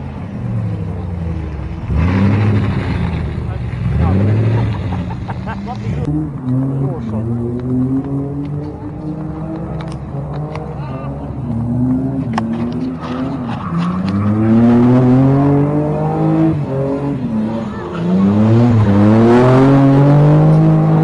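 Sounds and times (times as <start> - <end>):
car engine revving hard: 1.7 - 21.0.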